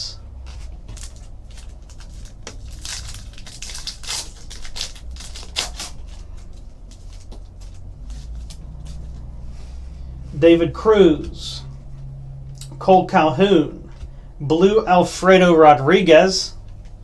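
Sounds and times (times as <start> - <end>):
trading cards swishing and rustling: 0.4 - 10.4.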